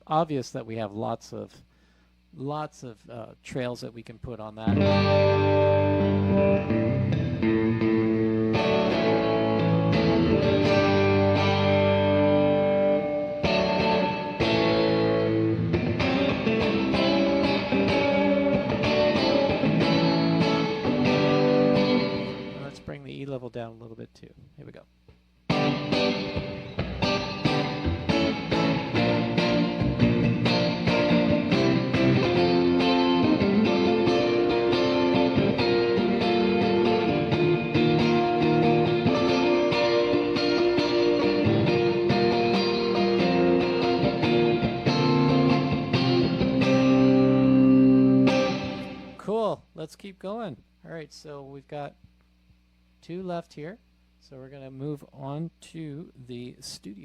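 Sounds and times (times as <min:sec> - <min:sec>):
electric guitar chords with reverb: 0:04.7 - 0:22.8, 0:25.5 - 0:49.2.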